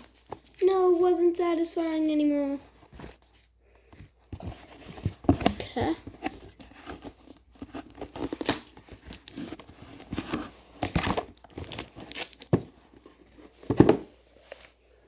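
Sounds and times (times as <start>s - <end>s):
sticky tape peeling and crinkling: 10.8s - 12.5s.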